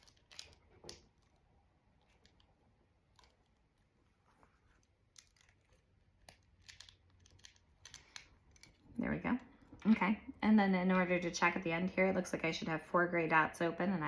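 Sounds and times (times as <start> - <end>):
plastic toy bricks clicking: 0.0 - 1.2, 6.2 - 8.8.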